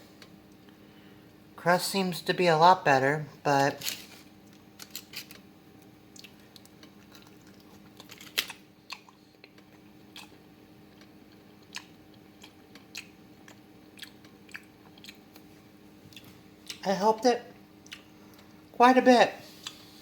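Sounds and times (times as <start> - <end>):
faint steady hum: 0.0 - 20.0
person chewing crunchy food: 6.1 - 16.8, 17.8 - 18.6, 19.5 - 20.0.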